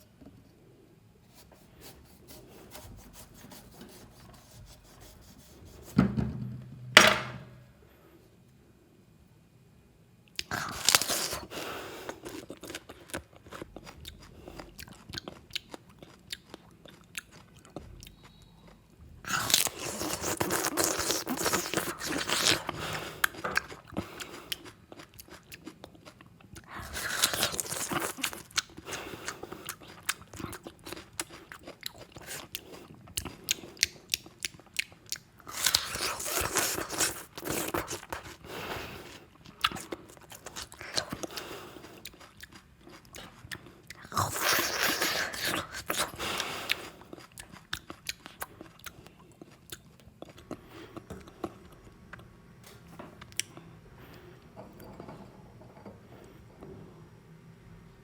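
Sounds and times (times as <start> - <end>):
biting and crunching food: 10.4 - 18.4, 19.3 - 51.9.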